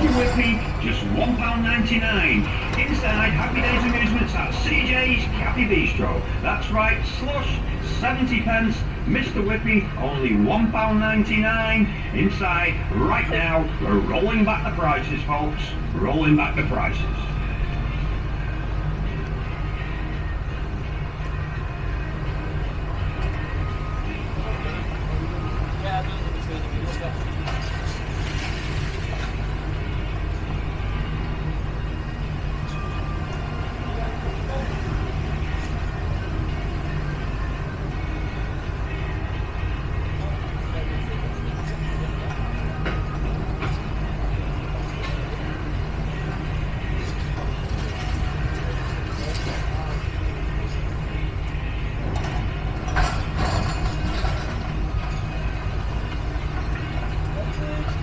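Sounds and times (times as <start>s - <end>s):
metallic clanking and creaking: 0.0s - 9.8s, 23.0s - 58.0s
low engine rumble: 0.0s - 58.0s.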